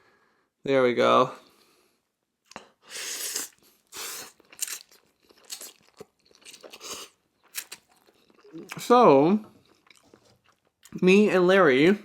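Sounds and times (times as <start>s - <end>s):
wet mouth noises eating noodles: 2.5s - 8.8s.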